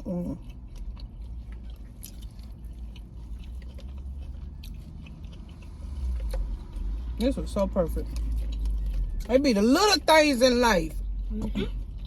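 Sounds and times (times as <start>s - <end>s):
person chewing food: 0.0s - 9.4s, 11.0s - 12.0s.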